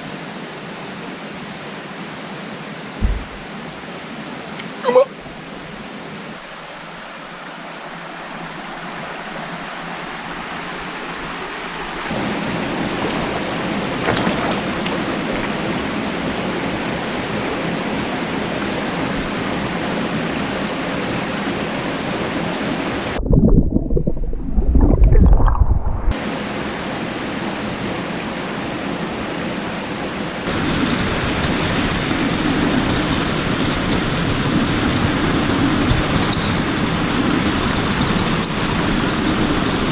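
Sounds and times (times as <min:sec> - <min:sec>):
waterfall and stream rushing: 0:00.0 - 0:23.2, 0:26.1 - 0:39.9
deep muffled buffeting: 0:03.0 - 0:03.6, 0:23.2 - 0:26.2.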